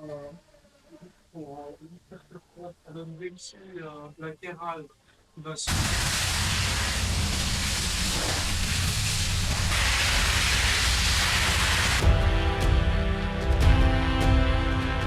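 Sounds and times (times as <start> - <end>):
music: 9.7 - 15.0.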